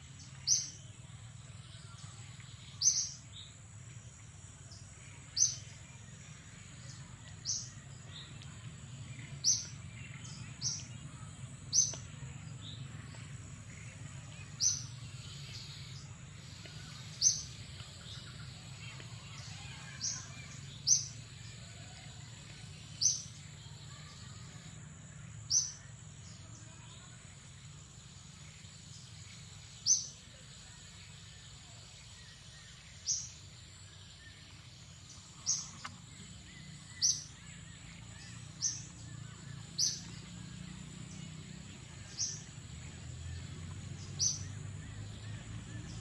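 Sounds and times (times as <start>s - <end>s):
bird chirping: 0.0s - 3.8s, 26.7s - 46.0s.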